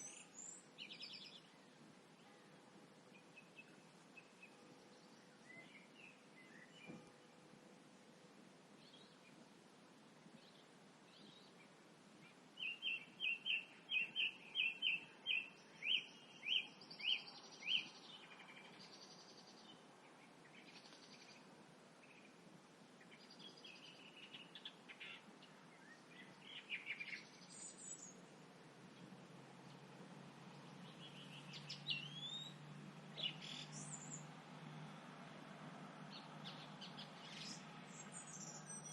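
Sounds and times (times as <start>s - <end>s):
varied bird calls: 0.0s - 1.6s, 10.5s - 22.4s, 23.0s - 28.2s, 30.5s - 35.0s, 36.1s - 38.9s
faint low hum: 0.0s - 38.9s
bird singing repeated notes: 12.3s - 21.4s, 30.8s - 34.3s, 36.1s - 38.9s.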